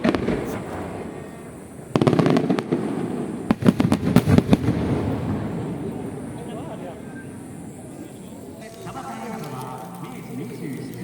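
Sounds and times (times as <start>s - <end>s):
aerial fireworks bangs: 0.0s - 6.3s.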